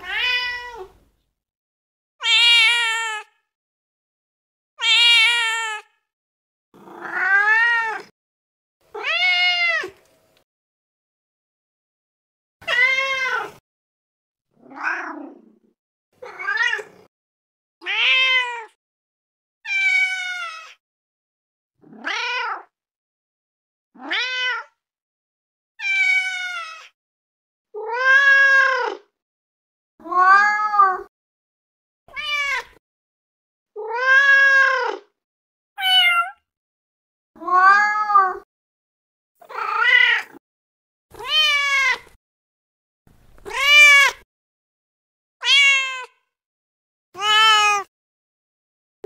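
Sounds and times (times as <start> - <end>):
cat meowing: 0.0 - 1.0, 2.2 - 3.4, 4.8 - 6.0, 6.8 - 8.1, 8.9 - 10.0, 12.6 - 13.6, 16.2 - 17.1, 17.8 - 18.8, 19.7 - 20.8, 21.9 - 22.7, 24.0 - 24.8, 25.8 - 27.0, 27.8 - 29.1, 30.0 - 31.1, 32.1 - 32.8, 33.8 - 35.1, 35.8 - 36.4, 37.4 - 38.4, 39.4 - 40.4, 41.1 - 42.2, 43.4 - 44.2, 45.4 - 46.3, 47.2 - 47.9.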